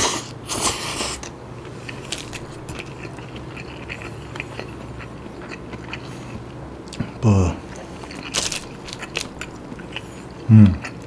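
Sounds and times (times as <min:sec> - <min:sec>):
chewing clicks and smacks: 0:01.2 - 0:11.0.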